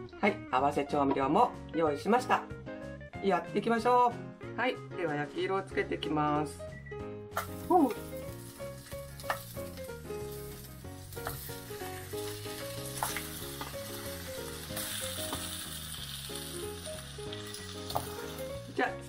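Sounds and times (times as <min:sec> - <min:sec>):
background music: 0:00.0 - 0:19.0
potatoes sizzling in hot oil: 0:07.4 - 0:19.0.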